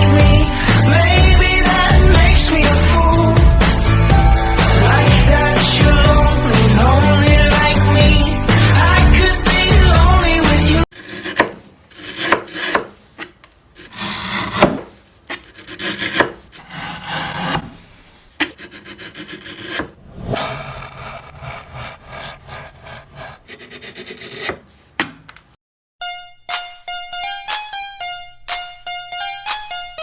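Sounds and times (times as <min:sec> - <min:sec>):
hand tool scraping wood: 0:10.9 - 0:25.0.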